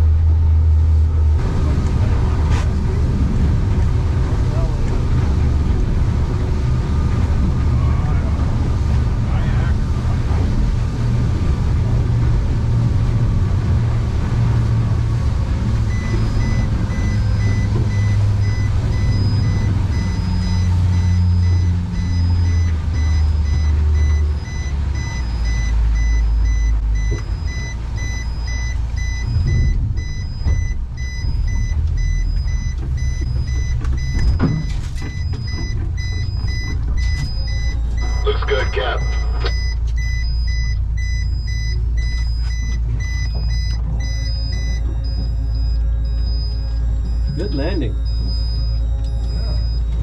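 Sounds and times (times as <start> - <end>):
heavy engine rumble: 0.0 - 50.0
reversing alarm beeping: 15.8 - 50.0.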